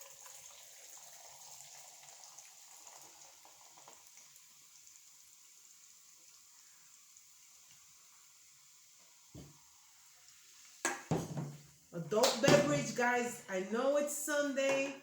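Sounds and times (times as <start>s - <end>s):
carbonated drink fizzing in a glass: 0.0s - 11.8s.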